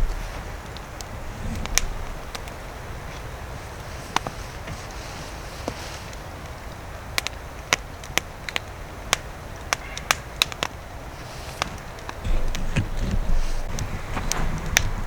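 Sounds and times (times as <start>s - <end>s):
low rumble: 0.0s - 3.0s, 12.2s - 15.0s
campfire crackling and popping: 0.0s - 15.0s.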